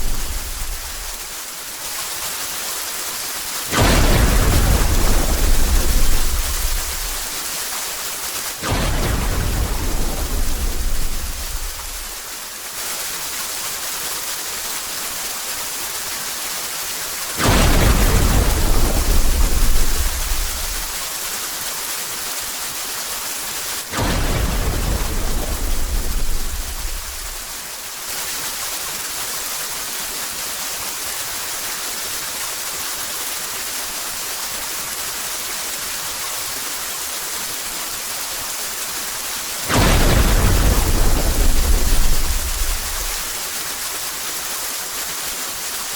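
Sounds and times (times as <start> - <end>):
thunder rumbling: 0.0 - 1.2, 3.7 - 7.4, 8.6 - 12.2, 17.4 - 21.0, 24.0 - 27.5, 39.7 - 43.4
steady rain: 0.0 - 45.9.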